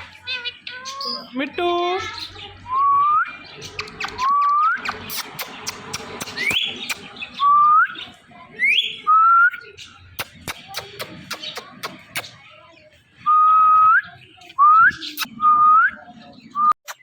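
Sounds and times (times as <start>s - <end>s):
sharp clicks: 3.7s - 7.1s, 10.2s - 12.4s.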